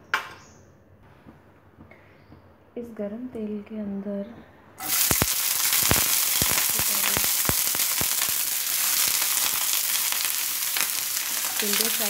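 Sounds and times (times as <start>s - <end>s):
gourd sizzling in frying pan: 4.8s - 12.0s.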